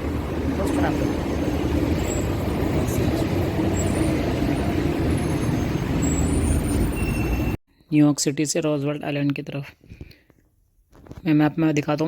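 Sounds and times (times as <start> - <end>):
large vehicle engine noise: 0.0 - 7.6
road traffic rumble: 0.0 - 7.6.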